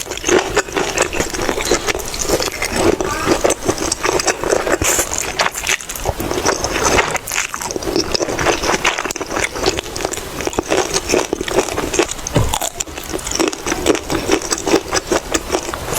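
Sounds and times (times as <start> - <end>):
chewing noodles with wet clicks: 0.0 - 15.9.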